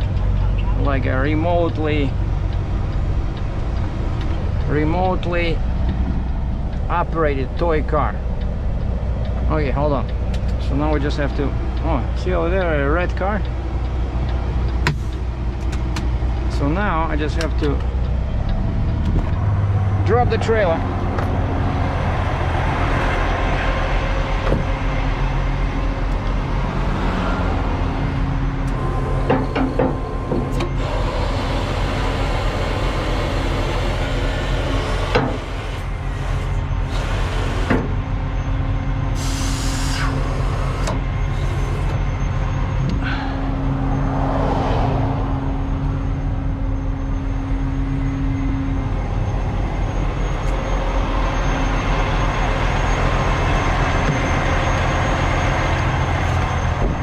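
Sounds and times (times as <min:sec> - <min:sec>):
truck diesel engine idling: 0:00.0 - 0:44.1, 0:45.0 - 0:57.0
air hiss bursts: 0:39.2 - 0:40.4.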